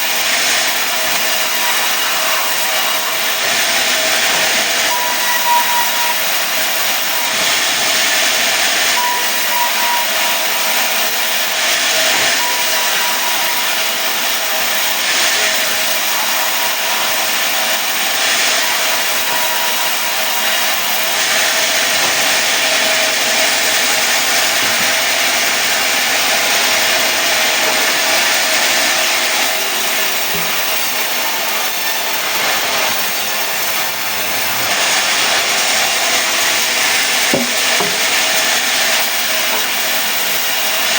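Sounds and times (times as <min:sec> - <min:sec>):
sawmill saw cutting log: 0:00.0 - 0:40.9
faint machine whine: 0:00.8 - 0:38.7.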